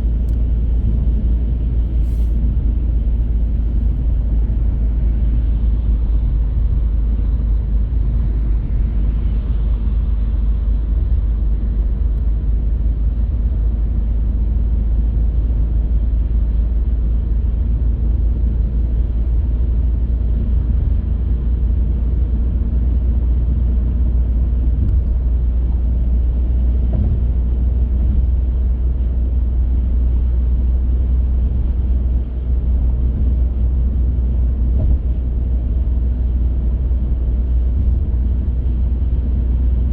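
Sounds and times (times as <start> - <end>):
car driving on road: 0.0 - 39.9.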